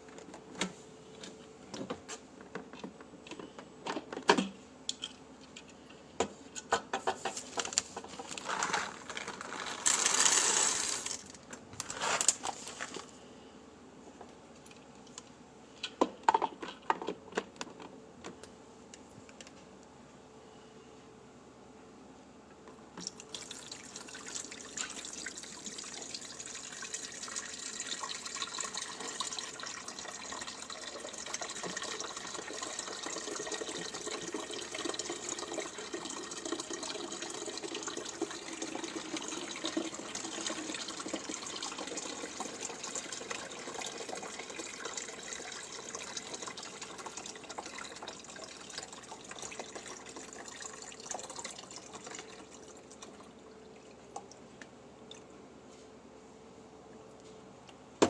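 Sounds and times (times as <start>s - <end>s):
water running from a tap: 23.0s - 52.6s.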